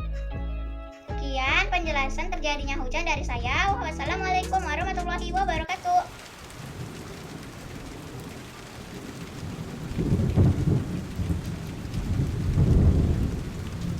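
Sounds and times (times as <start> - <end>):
thunder rumbling: 3.2 - 13.9
steady rain: 5.6 - 13.9.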